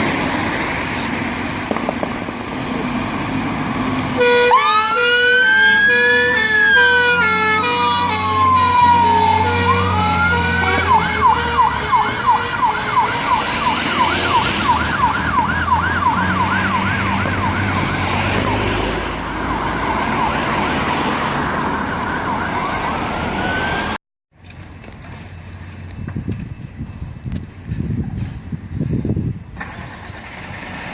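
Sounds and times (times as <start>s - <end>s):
fire engine siren: 1.7s - 24.0s.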